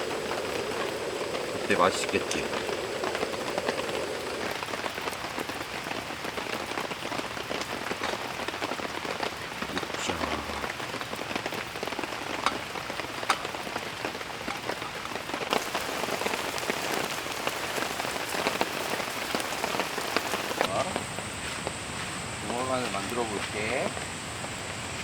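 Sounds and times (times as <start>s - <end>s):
raindrops tapping: 0.0s - 21.2s
rain falling: 0.0s - 25.0s.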